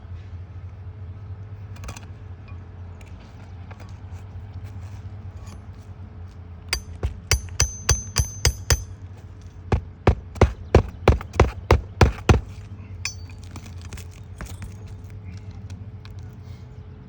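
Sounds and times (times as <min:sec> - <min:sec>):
hammer striking roofing nails: 0:06.8 - 0:09.0, 0:09.7 - 0:14.8.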